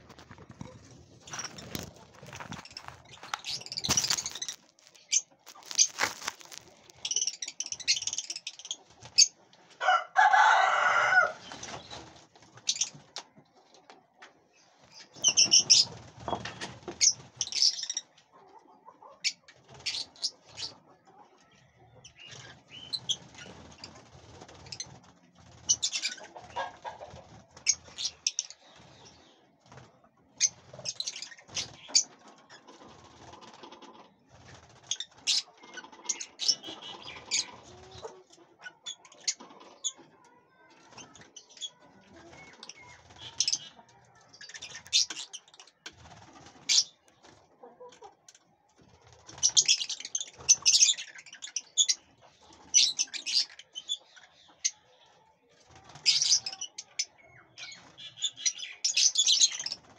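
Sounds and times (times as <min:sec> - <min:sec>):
birds chirping: 0:00.0 - 0:13.7, 0:30.2 - 0:47.8, 0:55.9 - 0:59.9.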